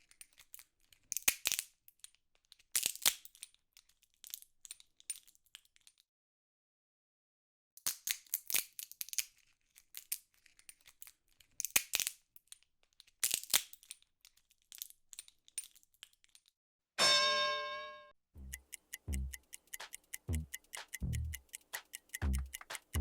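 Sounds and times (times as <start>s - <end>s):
sharp clicks and crinkles: 7.8s - 16.6s, 18.5s - 23.0s.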